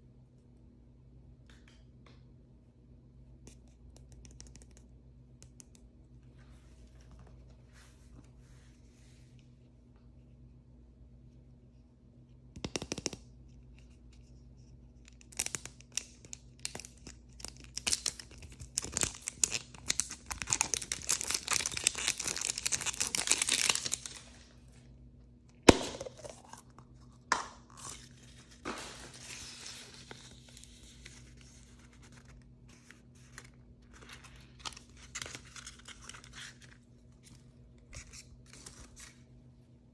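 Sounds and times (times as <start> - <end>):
plastic wrapping tearing and crinkling: 15.3 - 24.5.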